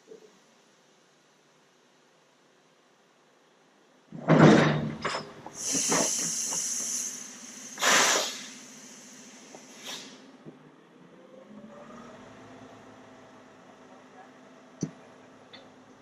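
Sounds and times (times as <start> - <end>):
compressed air hissing: 5.6 - 10.3.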